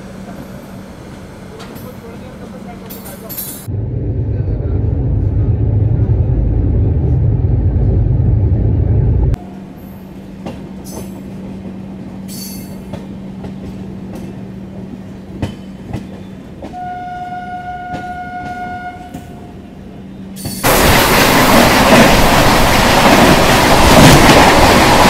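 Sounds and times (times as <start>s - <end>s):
passenger train rumbling: 0.0s - 25.0s
train horn: 16.7s - 19.7s.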